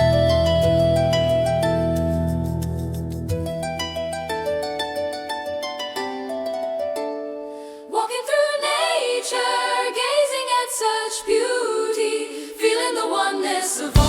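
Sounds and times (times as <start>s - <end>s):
harp: 0.0s - 8.2s
voices singing a cappella: 7.9s - 14.0s.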